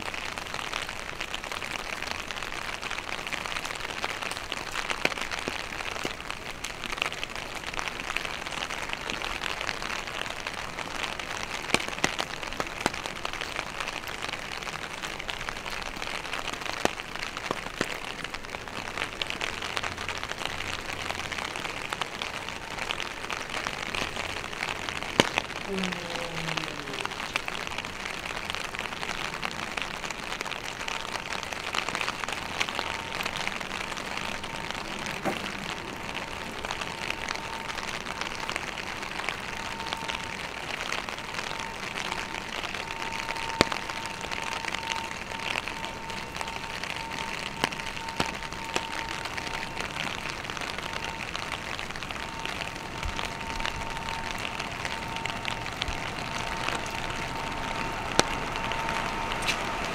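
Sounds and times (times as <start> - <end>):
rain falling: 0.0 - 59.9
thin steady tone: 32.9 - 59.9.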